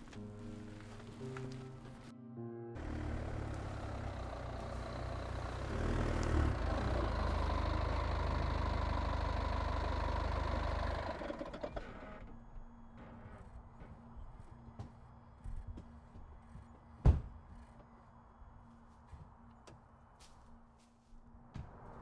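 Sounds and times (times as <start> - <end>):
car engine idling: 2.8 - 12.3.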